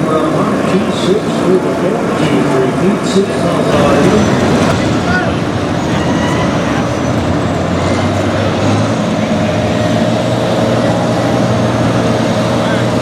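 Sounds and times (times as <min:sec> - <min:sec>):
tractor engine running under load: 0:03.7 - 0:12.6.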